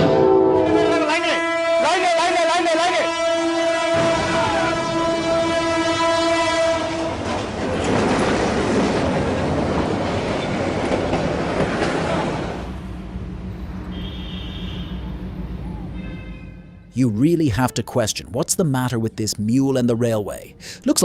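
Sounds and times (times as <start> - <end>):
train horn blaring: 0.0 - 7.5, 13.6 - 18.2
train rushing clatter: 3.8 - 16.0.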